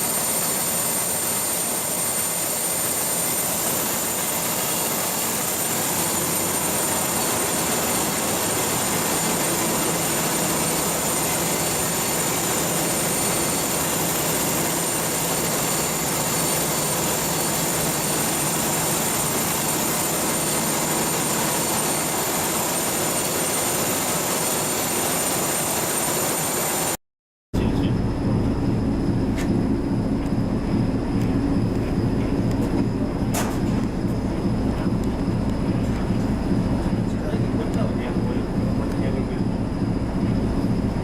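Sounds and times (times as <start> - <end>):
high-pitched mechanical whines: 0.0 - 26.9, 27.6 - 41.0
ship engine machinery running: 0.0 - 27.0, 27.6 - 41.0.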